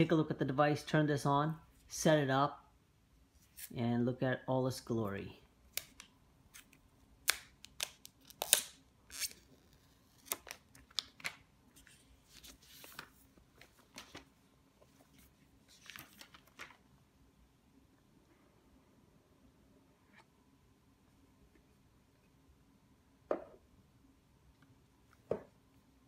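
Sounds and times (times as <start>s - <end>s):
soft sliding hiss: 11.7s - 16.8s.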